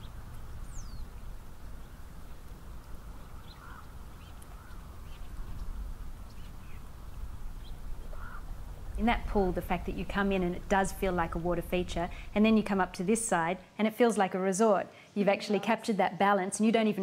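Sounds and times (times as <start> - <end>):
low background rumble: 0.0 - 13.6
short bird calls: 3.2 - 5.6, 7.6 - 8.5.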